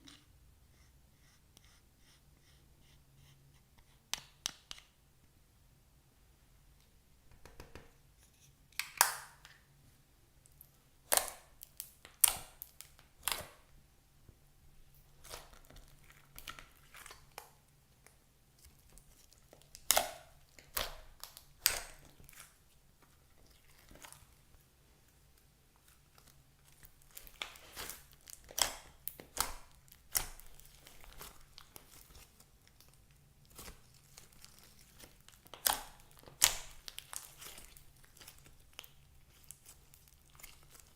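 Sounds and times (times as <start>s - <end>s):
slime popping and crackling: 11.0s - 13.5s, 19.0s - 22.5s, 26.2s - 40.9s.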